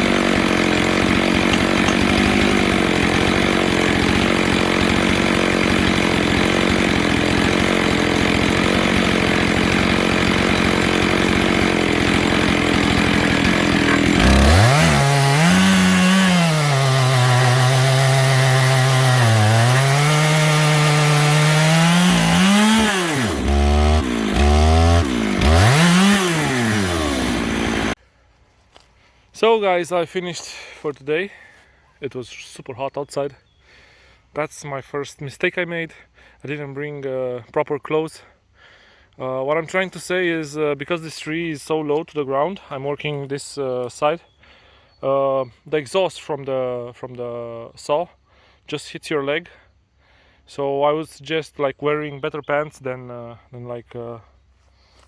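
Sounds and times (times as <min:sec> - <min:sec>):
chainsaw cutting log: 0:00.0 - 0:28.0.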